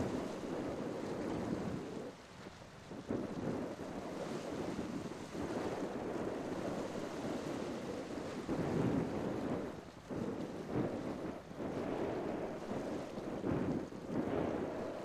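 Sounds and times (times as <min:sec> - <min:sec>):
waves rushing: 0:00.0 - 0:02.2
wind buffeting microphone: 0:00.0 - 0:15.0.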